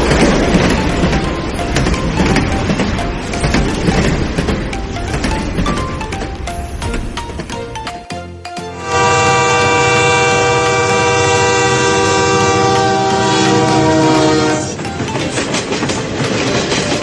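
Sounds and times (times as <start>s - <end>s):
train horn blast: 8.7s - 14.9s.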